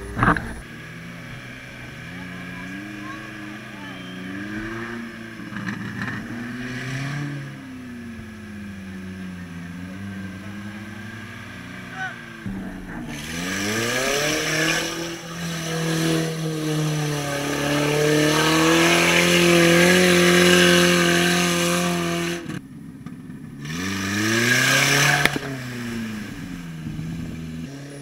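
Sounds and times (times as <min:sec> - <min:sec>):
engine revving hard: 0:00.0 - 0:22.6, 0:23.6 - 0:28.0
sharp knock: 0:12.4 - 0:16.2.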